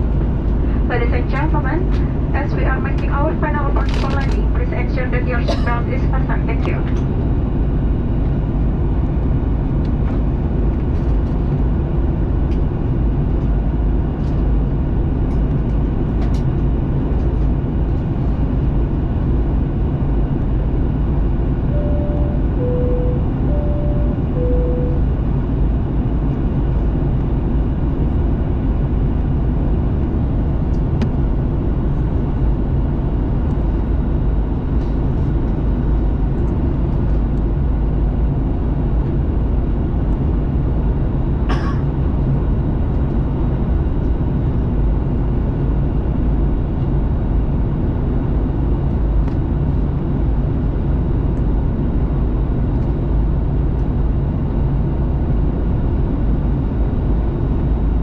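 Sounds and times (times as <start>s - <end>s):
airplane cabin engine rumble: 0.0s - 58.0s
two-tone cabin chime: 21.8s - 25.2s.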